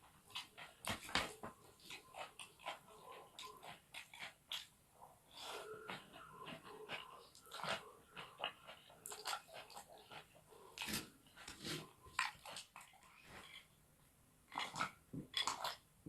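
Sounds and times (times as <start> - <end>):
chewing noodles: 1.7 - 4.7, 5.4 - 13.6, 14.5 - 15.8.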